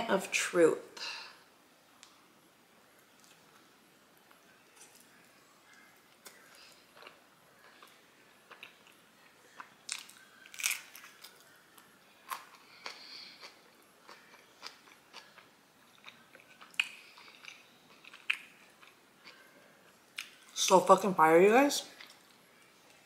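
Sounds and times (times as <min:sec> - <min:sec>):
person chewing: 0:04.3 - 0:20.5
bites and crunches: 0:09.8 - 0:11.4.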